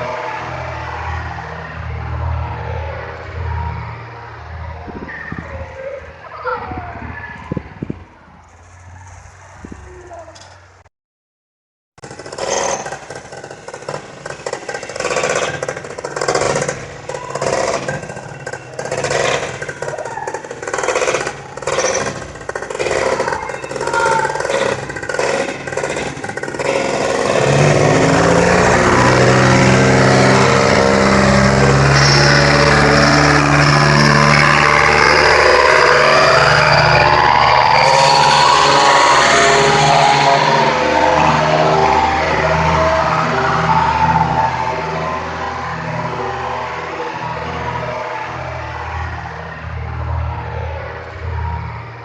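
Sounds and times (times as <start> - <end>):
small engine driving propeller: 12.0 - 43.1.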